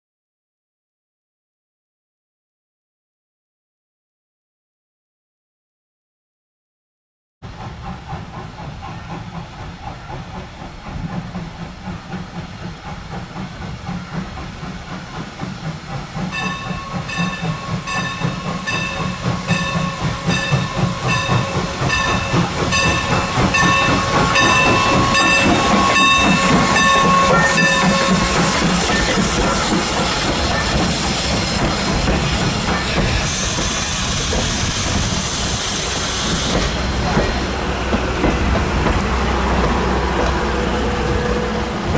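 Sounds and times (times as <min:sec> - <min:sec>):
steam locomotive chuffing: 0:07.4 - 0:41.9
steam hissing: 0:07.5 - 0:41.9
locomotive bell ringing: 0:16.2 - 0:34.2.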